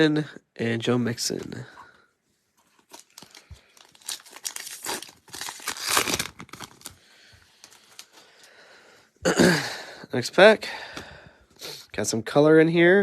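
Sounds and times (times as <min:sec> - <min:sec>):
wrapper tearing and crinkling: 0:02.7 - 0:07.0.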